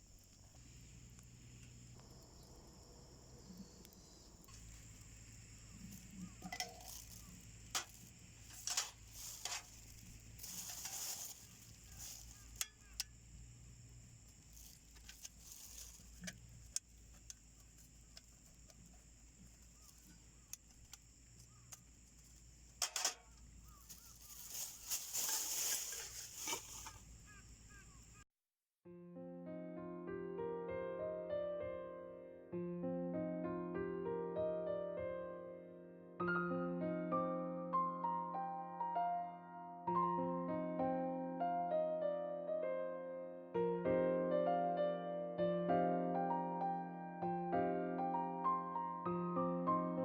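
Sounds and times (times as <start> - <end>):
insect trill: 0.0 - 28.3
rustling: 3.4 - 28.2.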